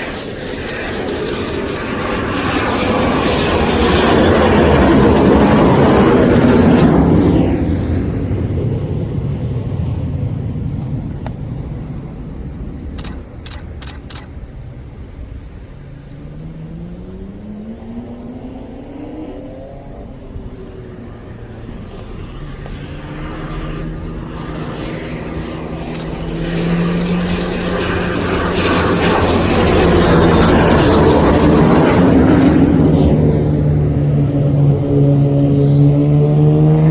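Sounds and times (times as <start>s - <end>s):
jet engines passing: 0.0s - 36.9s
whine rising in pitch: 13.0s - 36.9s.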